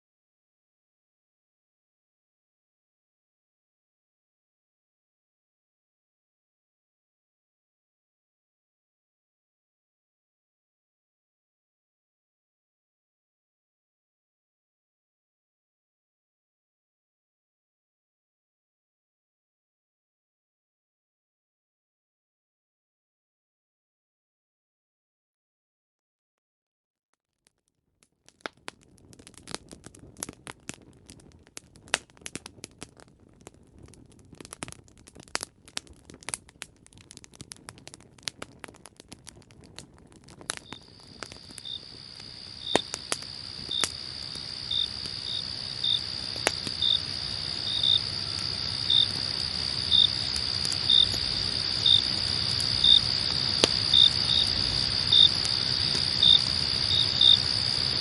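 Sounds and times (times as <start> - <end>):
campfire crackling: 28.2 - 58.0
crickets chirping: 40.6 - 58.0.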